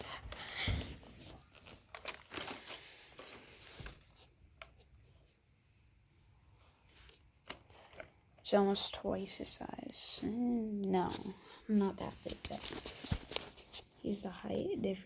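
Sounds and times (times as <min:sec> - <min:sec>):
handling rustling: 0:00.0 - 0:05.4, 0:10.8 - 0:14.8.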